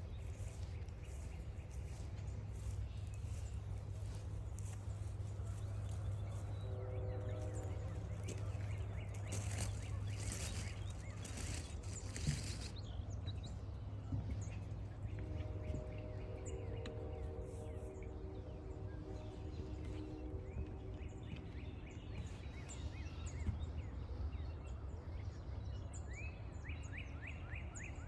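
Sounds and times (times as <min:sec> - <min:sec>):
birds chirping: 0:00.0 - 0:23.8
low hum: 0:00.0 - 0:25.1
rough rustling: 0:08.0 - 0:12.8.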